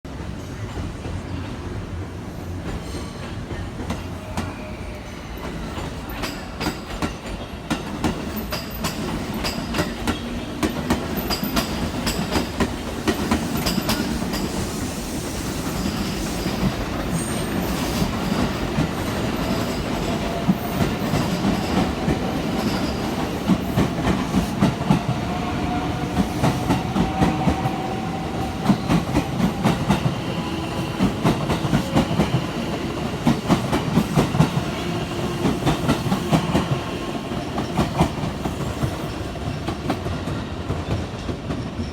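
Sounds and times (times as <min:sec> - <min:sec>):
train rumble: 0:00.1 - 0:41.9
train wheels clacking over rail joints: 0:05.5 - 0:25.2.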